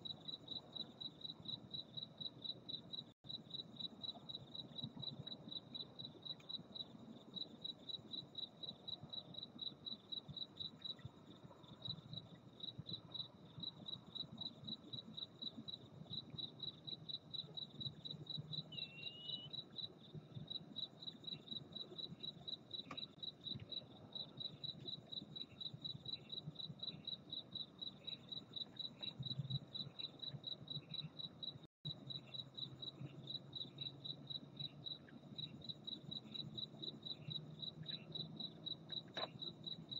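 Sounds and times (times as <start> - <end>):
crickets chirping: 0.0 - 39.9
faint short insect chirps: 12.9 - 19.9.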